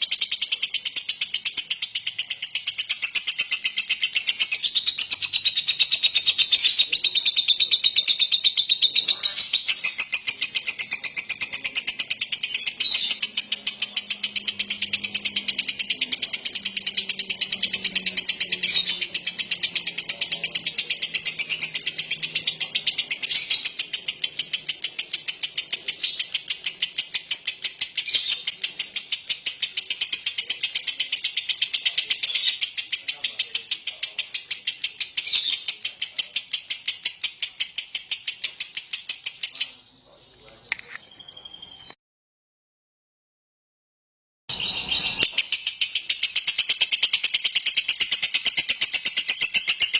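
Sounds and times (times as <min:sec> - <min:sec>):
lovebird chattering trill: 0:00.0 - 0:41.9, 0:44.5 - 0:49.9.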